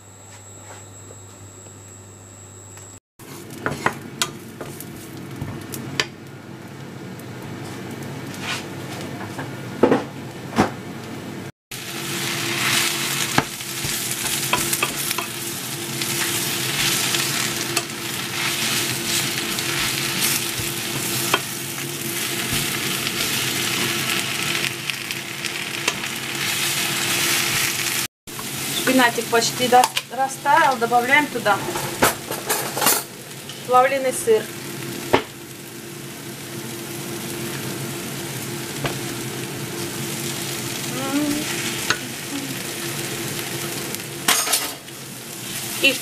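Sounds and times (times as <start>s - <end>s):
chopsticks stirring in a pan: 3.2s - 5.6s, 12.0s - 24.7s, 39.7s - 46.0s
garlic sizzling in oil: 3.2s - 9.1s, 11.7s - 46.0s.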